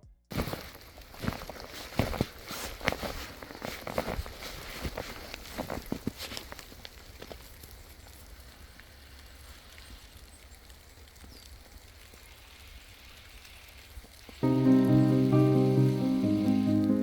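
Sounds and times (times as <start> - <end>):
footsteps crunching in snow: 0.3 - 8.4
faint steady hiss: 0.3 - 17.0.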